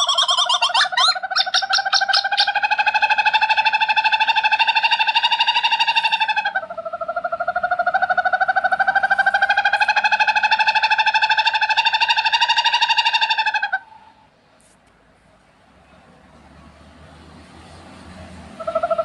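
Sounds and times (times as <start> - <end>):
owl trilling: 0.0 - 14.2, 18.6 - 19.0.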